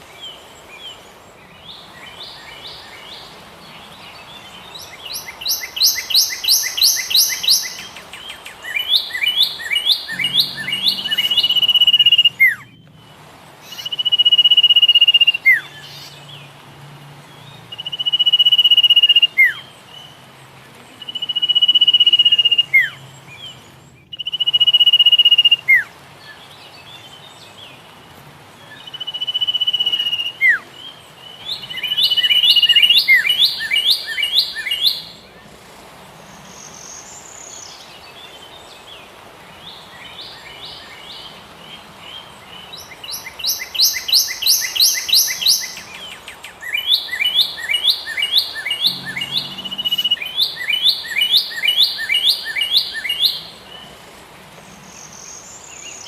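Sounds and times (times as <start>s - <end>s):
songbirds whistling: 0.0s - 16.5s, 17.3s - 27.9s, 28.5s - 35.4s, 36.3s - 54.0s
sharp repeated bird chirps: 4.8s - 12.8s, 42.8s - 53.6s.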